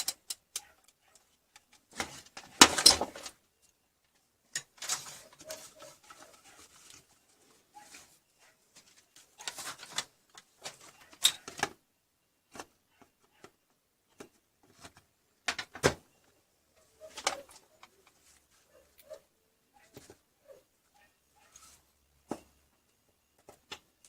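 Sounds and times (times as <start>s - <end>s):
objects clicking and knocking: 0.0s - 3.4s.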